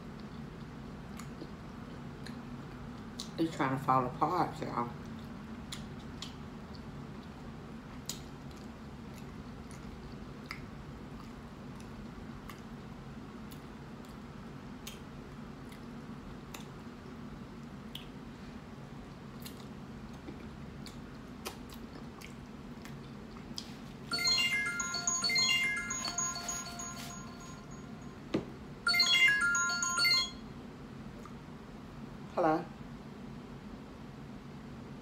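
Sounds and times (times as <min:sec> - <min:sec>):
wet chewing clicks: 0:05.0 - 0:12.9, 0:19.1 - 0:23.7
phone ringtone melody: 0:24.1 - 0:28.2, 0:28.9 - 0:30.5.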